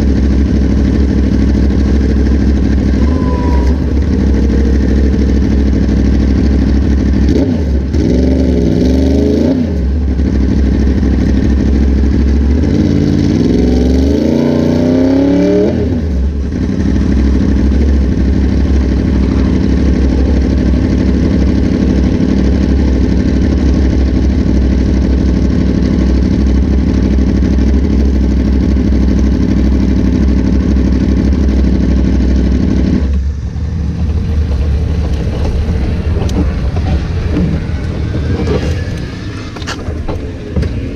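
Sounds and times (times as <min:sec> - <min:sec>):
racing motorcycle engine: 0:00.0 - 0:40.9
broad rush of noise: 0:02.5 - 0:08.1, 0:33.0 - 0:40.9.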